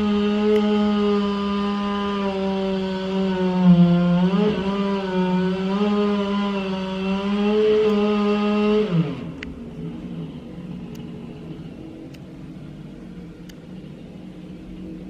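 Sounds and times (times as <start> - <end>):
chainsaw running: 0.0 - 9.4.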